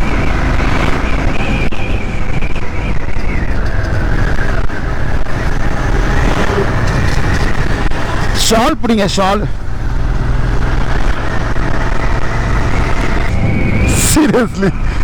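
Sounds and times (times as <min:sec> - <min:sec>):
wind noise on microphone: 0:00.0 - 0:08.4, 0:09.5 - 0:15.0
motorcycle engine running: 0:09.5 - 0:15.0
faint whine: 0:12.7 - 0:15.0.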